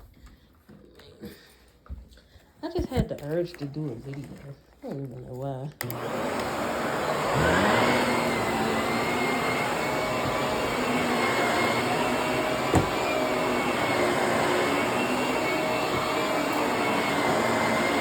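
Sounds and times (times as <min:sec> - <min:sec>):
vacuum cleaner motor whine: 0:05.8 - 0:18.0.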